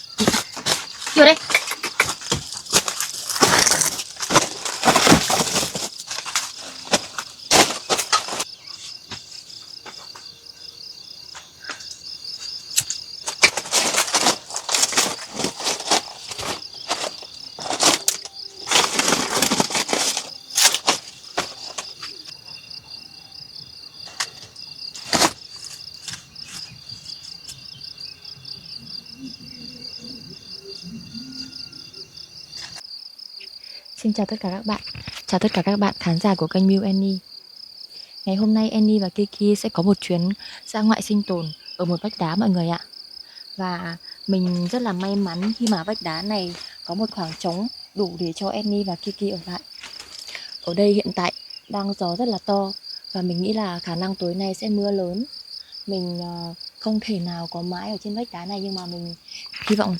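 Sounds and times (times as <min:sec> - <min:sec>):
loud rustling: 0:00.0 - 0:10.2, 0:11.4 - 0:22.9, 0:23.8 - 0:28.6, 0:44.0 - 0:50.6
crickets trilling: 0:00.0 - 0:59.9.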